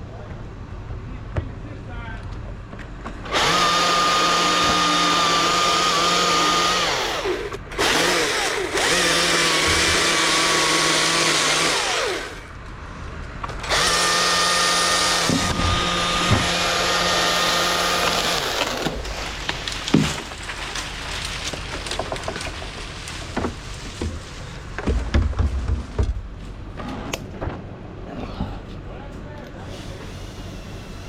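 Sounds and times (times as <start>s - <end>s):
chainsaw cutting at high revs: 3.3s - 12.5s, 13.6s - 19.0s.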